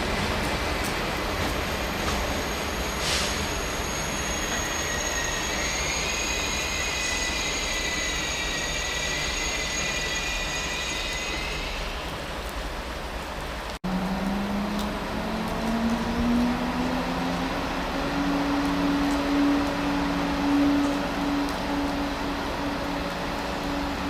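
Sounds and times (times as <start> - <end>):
train rolling on rails: 0.0 - 24.0
high wavering wheel squeal: 1.9 - 12.1
brief hiss: 2.9 - 3.7.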